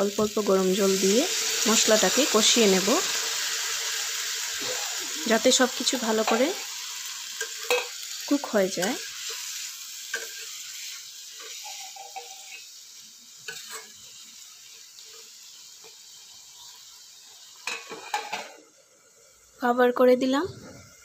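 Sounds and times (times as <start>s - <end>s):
spices sizzling in a pan: 0.0s - 21.0s
metal plate clinking on pan: 7.4s - 8.0s
metal spatula scraping pan: 8.8s - 12.8s, 13.4s - 14.0s.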